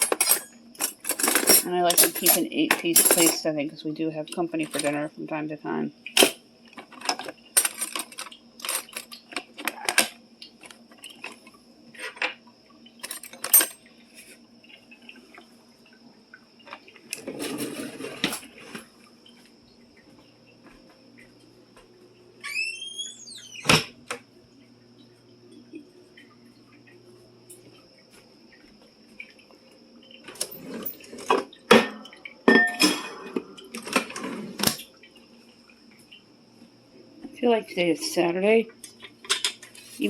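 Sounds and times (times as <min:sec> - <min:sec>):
plates and dishes clinking: 0:00.0 - 0:03.4, 0:30.4 - 0:34.8, 0:39.0 - 0:40.0.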